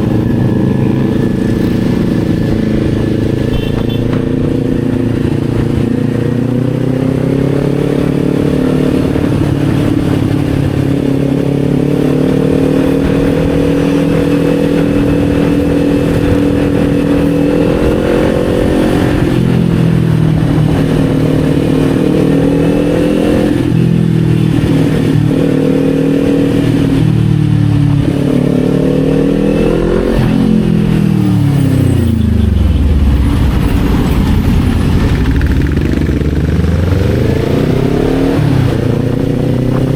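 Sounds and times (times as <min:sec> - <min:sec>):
motorcycle engine on the road: 0:00.0 - 0:39.9.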